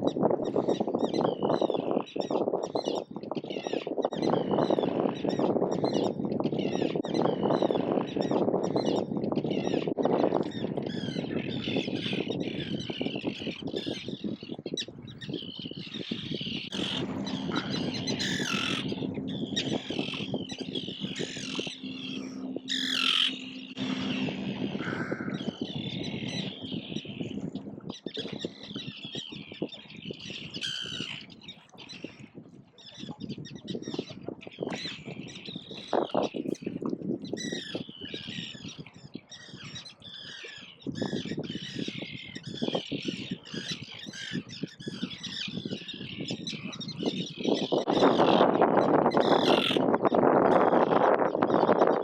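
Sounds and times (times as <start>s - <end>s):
gulls squawking: 0.6s - 32.2s, 37.4s - 52.0s
loud steady rushing noise: 16.7s - 27.5s.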